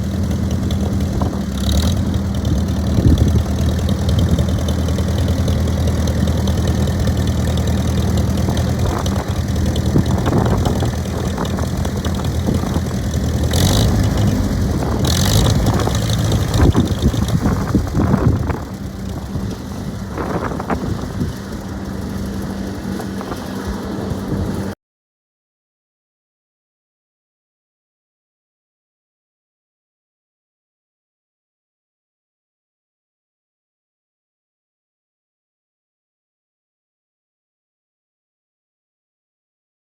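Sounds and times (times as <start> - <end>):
tractor engine idling: 0.0 - 24.8.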